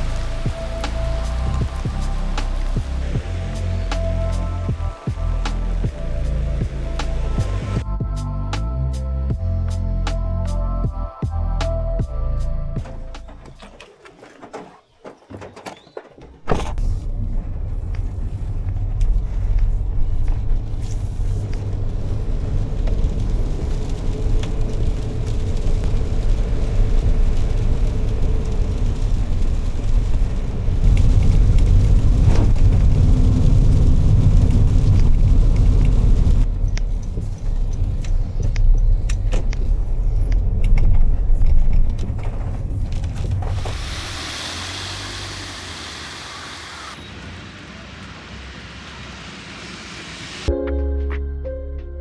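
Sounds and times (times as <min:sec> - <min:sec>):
vehicle engine and road rumble: 0:00.0 - 0:50.5.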